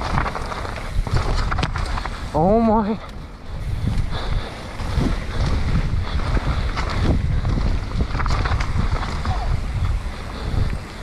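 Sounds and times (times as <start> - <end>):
bike knocks and rattles: 0.0 - 2.8, 4.8 - 11.0
bike tyre noise: 0.0 - 11.0
wind rumbling on microphone: 0.0 - 11.0.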